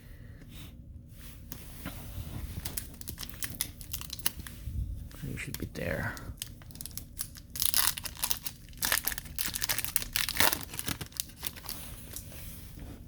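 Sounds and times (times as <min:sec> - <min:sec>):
plastic wrapper crinkling and tearing: 0:02.5 - 0:04.6, 0:05.2 - 0:12.2.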